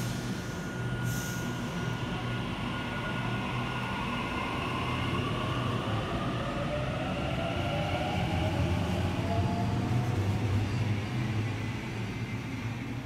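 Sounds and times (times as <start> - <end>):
faint whine: 0.0 - 3.8
train rumbling on rails: 0.0 - 13.0.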